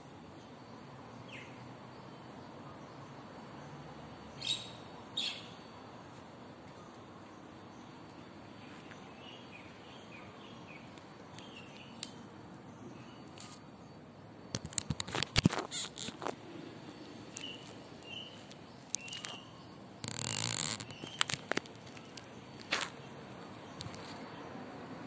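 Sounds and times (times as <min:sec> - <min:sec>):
small birds chirping faintly: 0:00.0 - 0:25.0
sharp clicks and knocks: 0:14.6 - 0:16.4.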